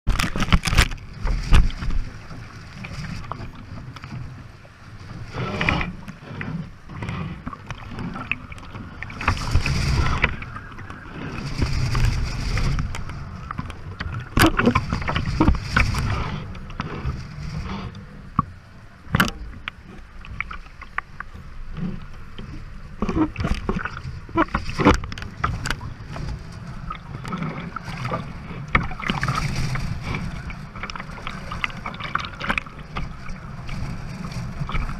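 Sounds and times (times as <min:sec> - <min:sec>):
water splashing against hull: 0:00.0 - 0:34.9
sharp knocks from boat: 0:00.1 - 0:04.2, 0:19.1 - 0:21.1
wind buffeting microphone: 0:07.6 - 0:19.8.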